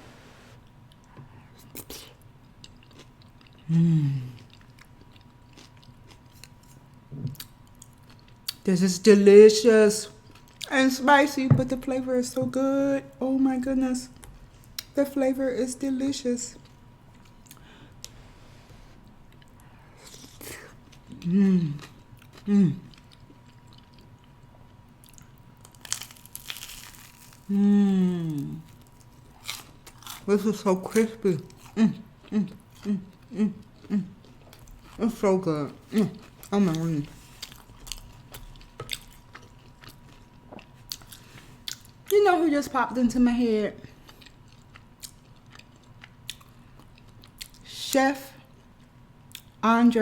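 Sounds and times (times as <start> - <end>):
person chewing food: 0.8 - 8.6, 19.0 - 27.5, 28.6 - 30.3, 31.5 - 35.0, 35.8 - 42.1, 43.9 - 47.6, 48.6 - 49.6
person humming mmm: 3.6 - 4.4, 21.1 - 22.9, 27.5 - 28.7
person humming mm: 3.7 - 4.4, 27.5 - 28.6.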